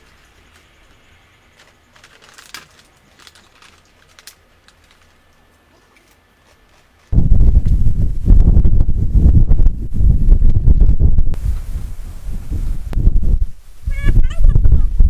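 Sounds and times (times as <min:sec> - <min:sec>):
wind buffeting microphone: 0:07.1 - 0:15.0.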